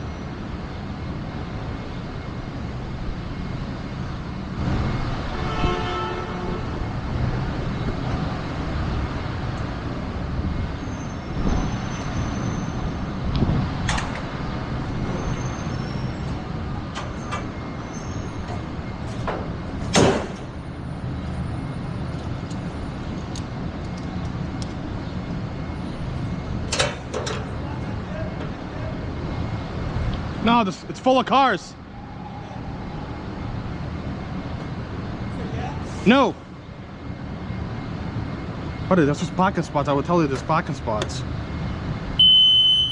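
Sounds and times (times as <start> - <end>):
vehicle road and engine rumble: 0.0 - 42.9.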